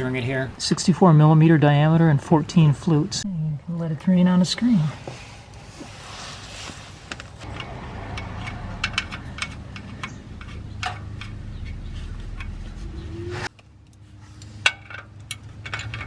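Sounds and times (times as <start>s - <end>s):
metal tools clicking and clinking: 7.4s - 12.6s, 14.6s - 16.0s.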